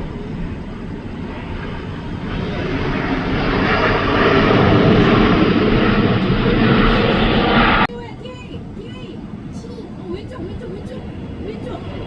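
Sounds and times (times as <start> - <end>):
jet airliner engines: 0.0 - 12.0.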